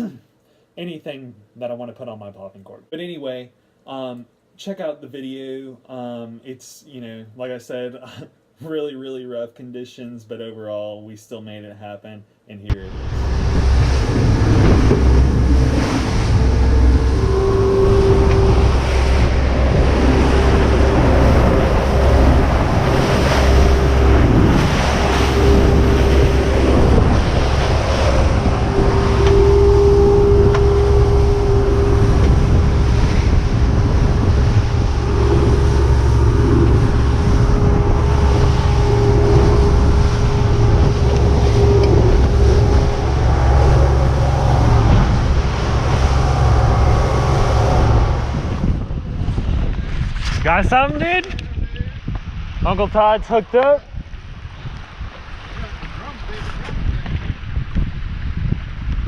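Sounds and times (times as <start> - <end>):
mid-pitched hum: 12.7 - 52.2
waves slapping a boat: 12.7 - 59.0
wind buffeting microphone: 12.7 - 59.0.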